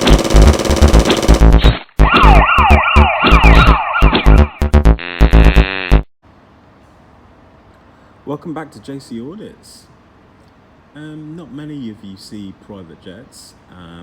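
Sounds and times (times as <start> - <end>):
electronic music with heavy drums: 0.0 - 6.1
siren-like sweeping sound: 2.0 - 4.5.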